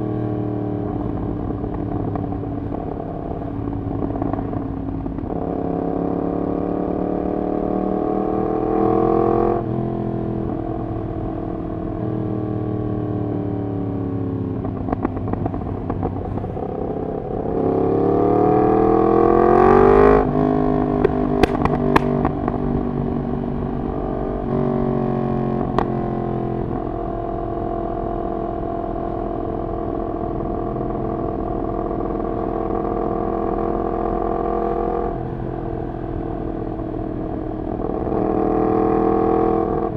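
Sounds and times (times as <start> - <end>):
motorcycle engine revving: 21.1 - 22.4
exhaust cracks: 21.1 - 22.6.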